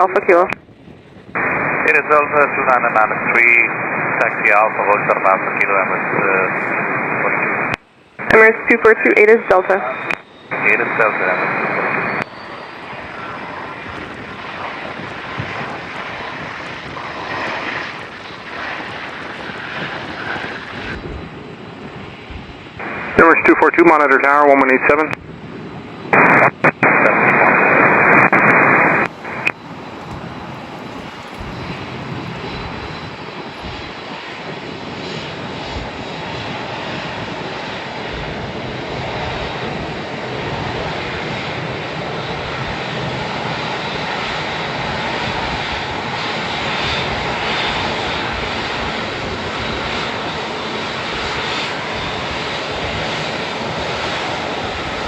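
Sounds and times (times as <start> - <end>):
jet engines running: 0.0 - 55.0
radio static hiss: 1.4 - 21.0, 22.8 - 25.2, 26.1 - 30.4.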